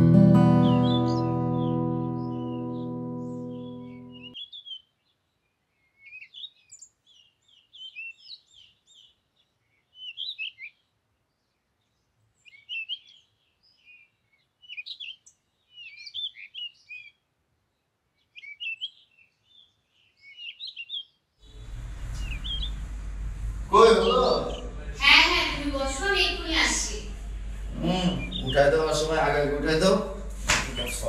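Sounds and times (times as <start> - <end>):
small birds chirping: 0.5 - 31.0.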